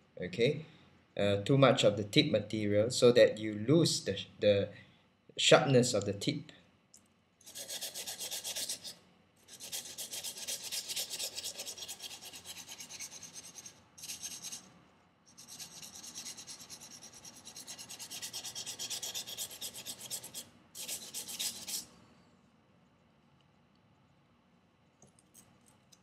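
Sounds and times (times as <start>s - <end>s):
knife scraping on sandpaper: 7.4s - 14.7s, 15.3s - 21.9s.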